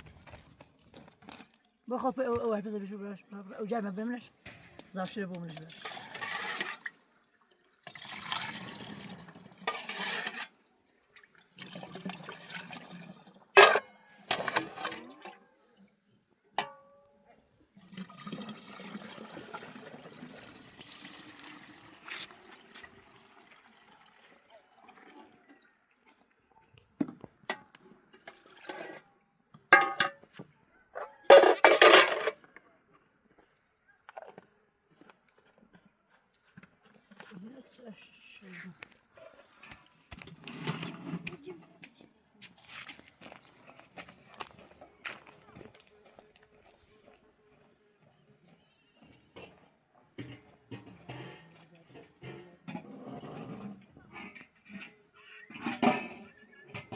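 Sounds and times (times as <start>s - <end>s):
water splashing and pouring: 5.5s - 10.4s, 11.0s - 15.1s, 17.8s - 25.6s, 28.1s - 29.0s.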